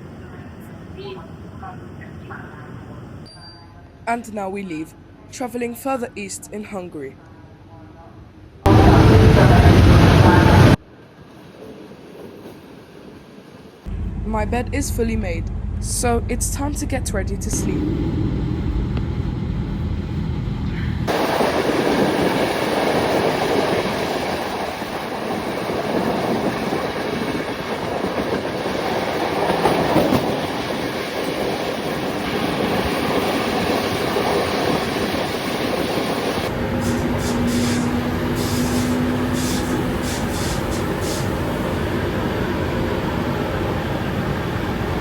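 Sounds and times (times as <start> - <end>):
train wheels rolling on rails: 8.7 - 13.9, 20.0 - 45.0
steady hum: 13.9 - 25.6.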